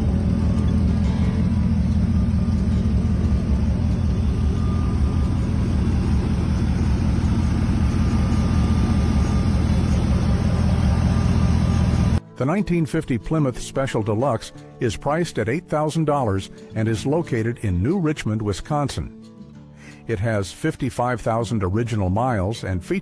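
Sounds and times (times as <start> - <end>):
jeep engine rumbling: 0.0 - 12.2.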